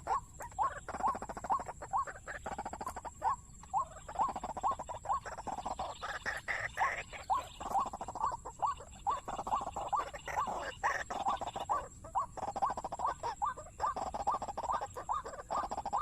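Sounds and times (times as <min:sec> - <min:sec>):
waterhen croaking calls: 0:00.0 - 0:16.0.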